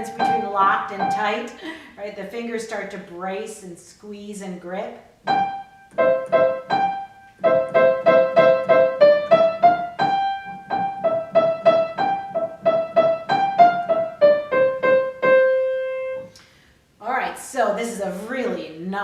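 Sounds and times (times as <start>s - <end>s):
staccato piano melody: 0.0s - 1.4s, 5.3s - 16.2s.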